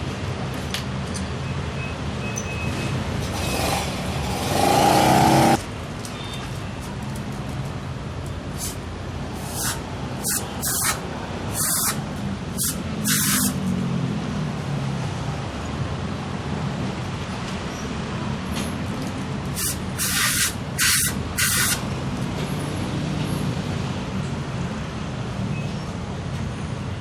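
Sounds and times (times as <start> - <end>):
cleaner spray hissing: 8.6 - 13.6, 19.6 - 21.8.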